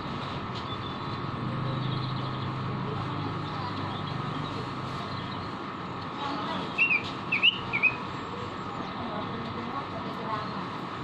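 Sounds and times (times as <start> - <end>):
bird whistled notes: 6.8 - 8.0.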